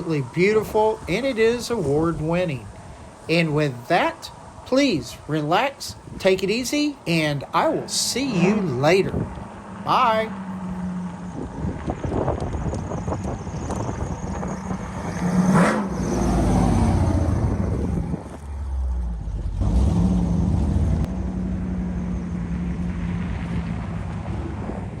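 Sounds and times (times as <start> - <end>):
truck engine driving by: 0.0 - 25.0.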